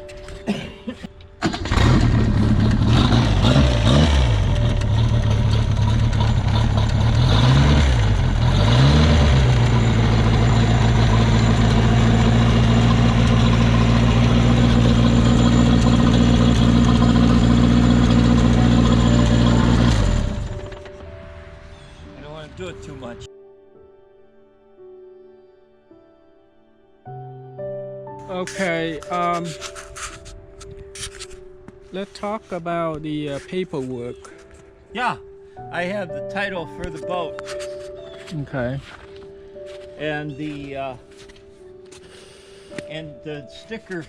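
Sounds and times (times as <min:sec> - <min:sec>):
boat engine starting and idling: 0:01.4 - 0:21.2.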